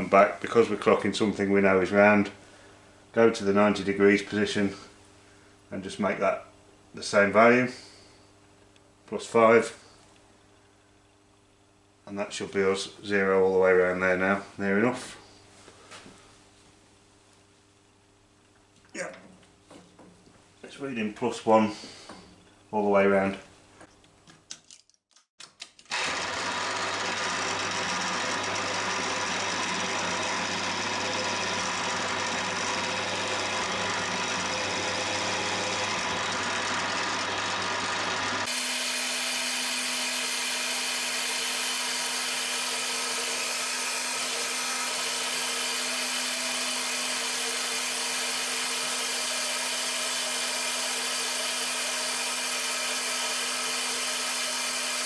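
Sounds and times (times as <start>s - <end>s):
drill spindle running: 25.9s - 55.0s.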